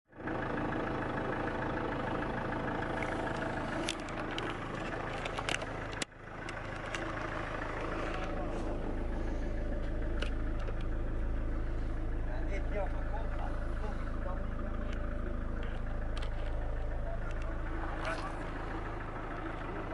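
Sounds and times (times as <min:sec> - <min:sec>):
car engine idling: 0:00.1 - 0:19.9.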